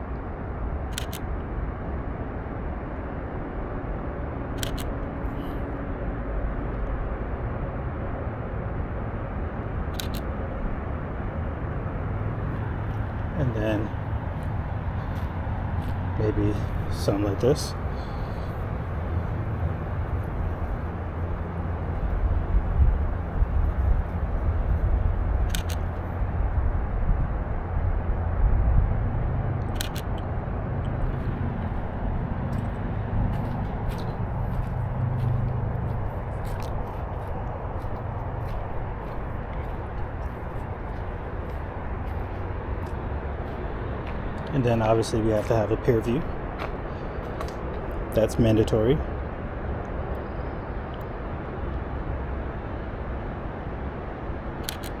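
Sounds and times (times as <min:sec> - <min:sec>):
low background rumble: 0:00.0 - 0:55.0
camera shutter double click: 0:00.9 - 0:01.2, 0:04.6 - 0:04.9, 0:10.0 - 0:10.3, 0:25.5 - 0:25.9, 0:29.8 - 0:30.1, 0:54.6 - 0:55.0.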